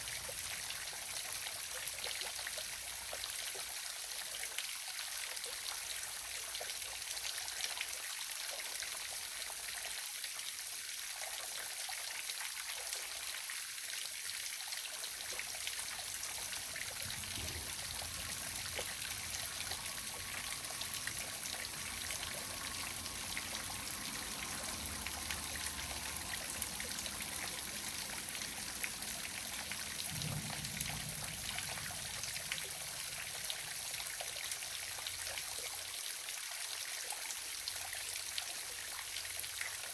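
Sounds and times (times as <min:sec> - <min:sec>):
small waterfall splashing: 0:00.0 - 0:39.9
faint low rumble: 0:16.2 - 0:34.4.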